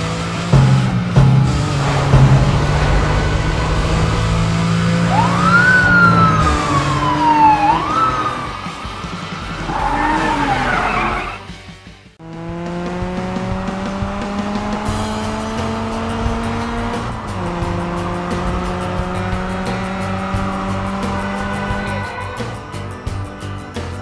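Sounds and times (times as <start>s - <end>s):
background music: 0.0s - 24.0s
cartoon engine accelerating: 0.2s - 11.4s
cartoon skidding squeal: 1.8s - 11.5s.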